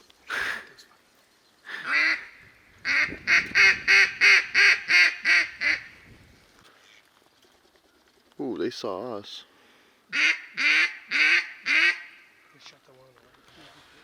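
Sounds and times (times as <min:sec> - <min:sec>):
duck quacking: 0:01.8 - 0:05.9, 0:10.1 - 0:12.2.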